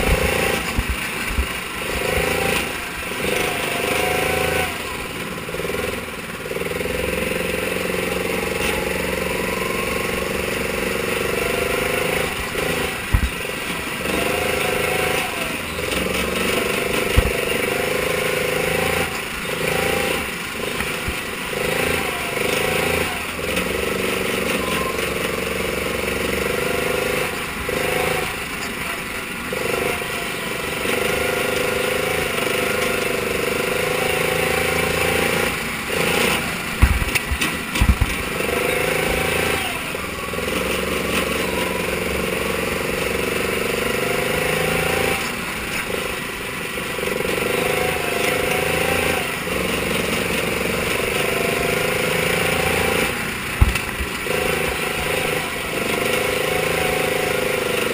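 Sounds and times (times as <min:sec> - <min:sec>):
sprint car engine running hard: 0:00.0 - 0:57.9
sharp thumps: 0:12.4 - 0:13.7, 0:36.1 - 0:39.2, 0:53.6 - 0:54.8.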